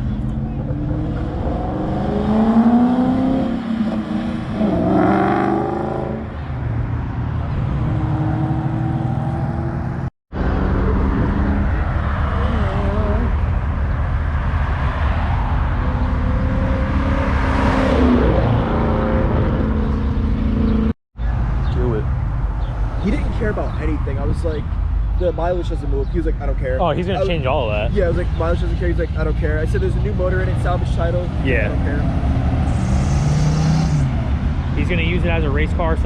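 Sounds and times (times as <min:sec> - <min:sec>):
car engines revving: 0:00.0 - 0:36.0
cars driving past: 0:00.0 - 0:36.0.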